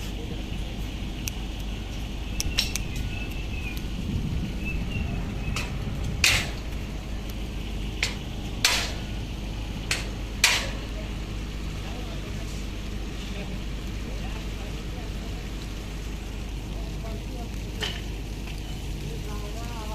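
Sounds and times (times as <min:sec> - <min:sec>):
low rumble: 0:00.0 - 0:19.9
sharp taps and knocks: 0:02.4 - 0:03.9, 0:05.5 - 0:07.4, 0:08.0 - 0:09.1, 0:09.8 - 0:10.9.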